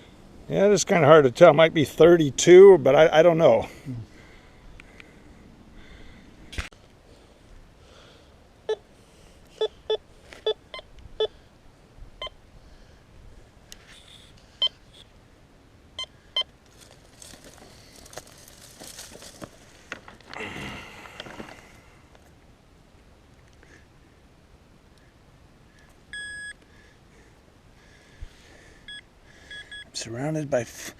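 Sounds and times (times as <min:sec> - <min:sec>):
rustling and scraping: 0:13.7 - 0:15.0, 0:16.6 - 0:22.4
metal detector beeps: 0:26.1 - 0:26.6, 0:28.9 - 0:30.0.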